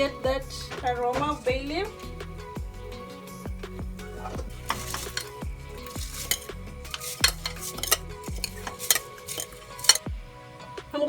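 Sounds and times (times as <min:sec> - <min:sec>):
soft background music: 0:00.0 - 0:11.0
spoon clinking against pot: 0:04.5 - 0:10.1
spoon stirring rice in water: 0:04.5 - 0:10.1.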